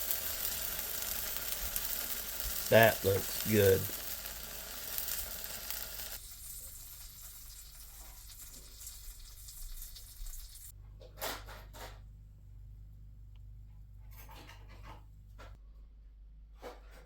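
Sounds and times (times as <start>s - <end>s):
sandwich sizzling in a frying pan: 0.0s - 10.8s.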